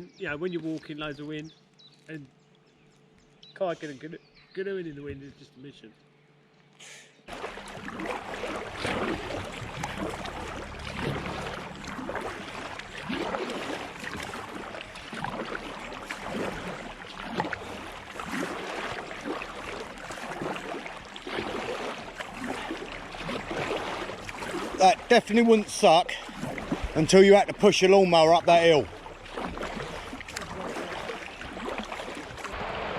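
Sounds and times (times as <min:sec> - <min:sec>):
water splashing around a canoe: 0:07.3 - 0:32.9.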